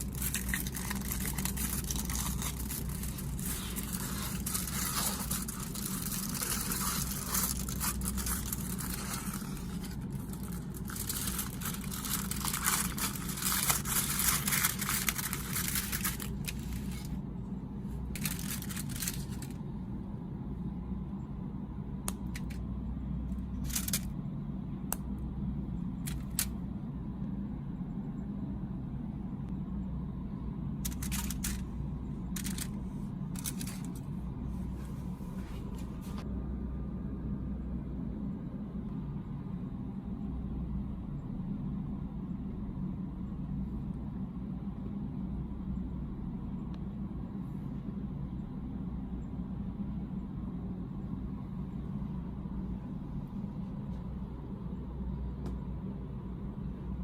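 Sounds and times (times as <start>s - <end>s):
packaging crinkling and tearing: 0.0s - 17.2s, 18.2s - 19.6s, 23.6s - 24.1s, 30.9s - 31.7s, 32.4s - 32.8s, 33.4s - 34.0s
steady low hum: 0.0s - 57.0s.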